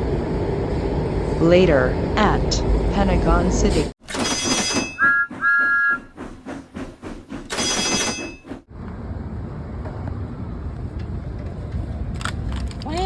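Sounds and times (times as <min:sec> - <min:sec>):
train rumbling: 0:00.0 - 0:13.0
train clattering: 0:03.6 - 0:08.7, 0:09.9 - 0:13.0.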